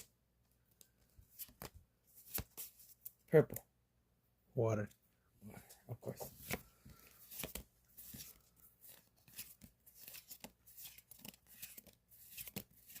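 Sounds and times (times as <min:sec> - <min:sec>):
trading cards clicking and rustling: 0:06.4 - 0:13.0.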